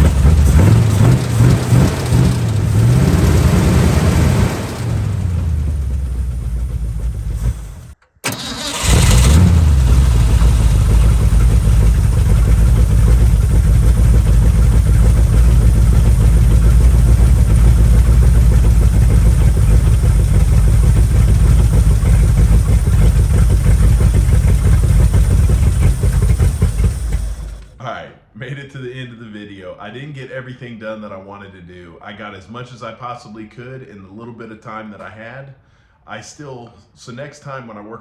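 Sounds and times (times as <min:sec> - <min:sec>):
truck engine starting and running: 0:00.0 - 0:27.8.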